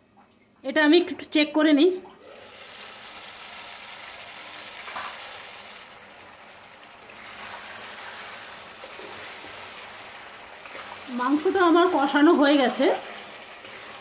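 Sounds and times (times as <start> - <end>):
gravy sizzling and bubbling: 2.2 - 14.0
spatula stirring in pan: 7.0 - 14.0.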